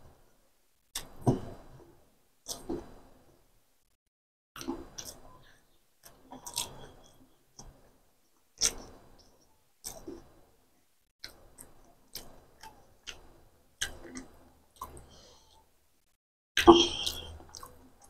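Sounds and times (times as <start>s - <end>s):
person chewing with wet smacking: 4.6s - 7.9s, 8.5s - 10.4s, 11.2s - 15.8s, 16.6s - 18.0s.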